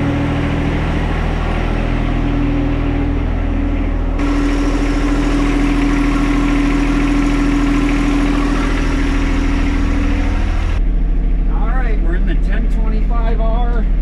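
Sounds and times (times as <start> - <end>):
diesel tractor engine idling: 0.0 - 10.8
steady hum: 0.0 - 14.0.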